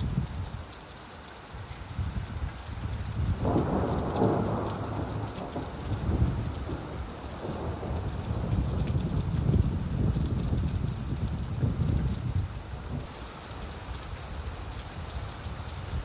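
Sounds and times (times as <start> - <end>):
steady rain: 0.0 - 16.0
low thunder rumble: 2.0 - 13.1.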